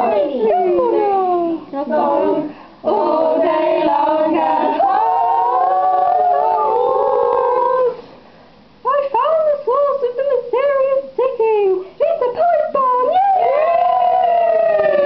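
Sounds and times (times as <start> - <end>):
voices singing in harmony: 1.9 - 8.0.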